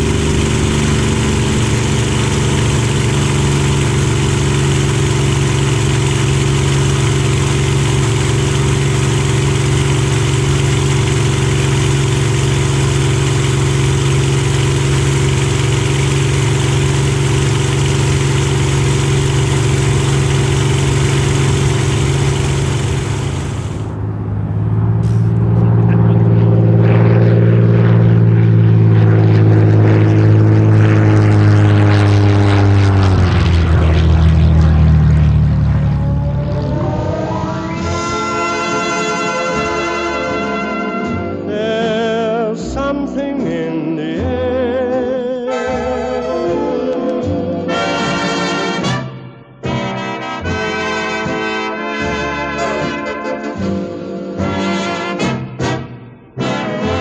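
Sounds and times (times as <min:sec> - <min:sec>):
propeller plane engine drone: 0:00.0 - 0:41.2.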